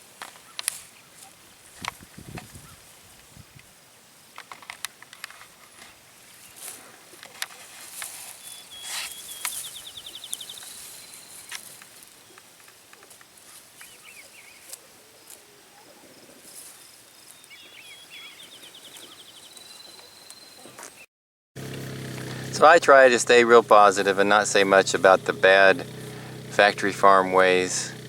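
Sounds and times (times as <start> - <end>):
chickens foraging clicks and rustles: 4.3 - 15.5
songbird singing: 8.2 - 21.1, 22.3 - 28.0.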